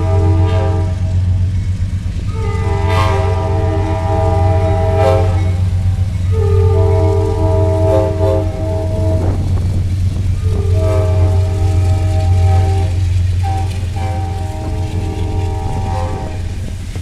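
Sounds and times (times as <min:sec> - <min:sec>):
locomotive horn blasts: 0:00.0 - 0:01.4, 0:02.2 - 0:16.8
passing train rumble: 0:00.0 - 0:17.0.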